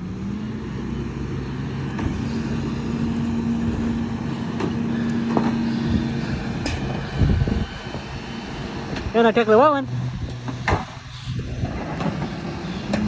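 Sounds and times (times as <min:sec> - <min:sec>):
garbage truck low hum: 0:00.0 - 0:13.0.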